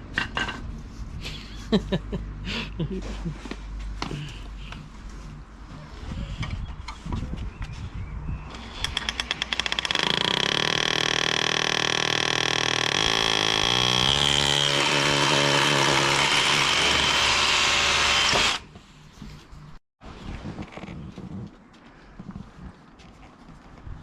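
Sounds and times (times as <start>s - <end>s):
power drill whining: 8.8s - 18.6s.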